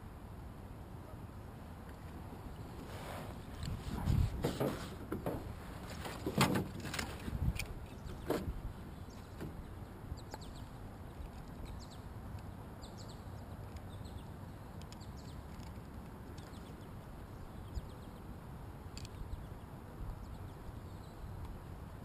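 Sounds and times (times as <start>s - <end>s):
small birds chirping: 7.6s - 21.8s.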